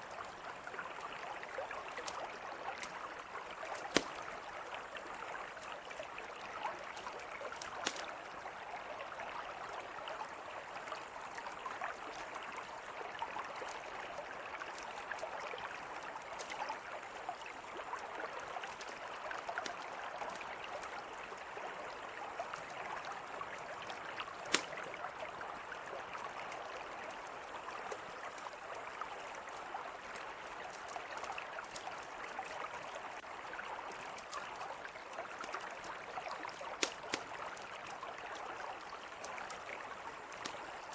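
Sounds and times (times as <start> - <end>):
river flowing: 0.0 - 40.9
campfire pops: 3.6 - 4.6, 7.5 - 8.1, 24.3 - 24.9, 36.5 - 37.6.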